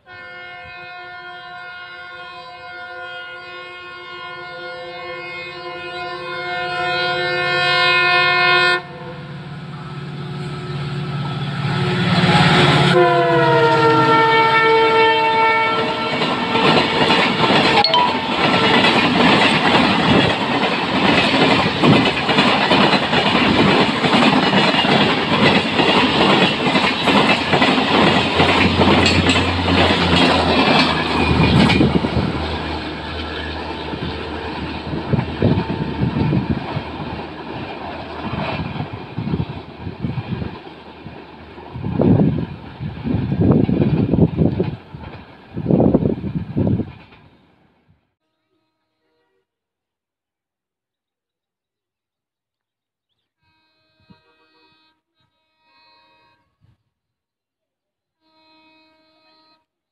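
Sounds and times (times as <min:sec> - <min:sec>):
locomotive horn blowing: 0:00.0 - 0:09.2, 0:11.7 - 0:17.0, 0:48.2 - 0:49.5, 0:53.4 - 0:56.7, 0:58.2 - 0:59.7
train coaches rushing past: 0:09.0 - 0:47.4.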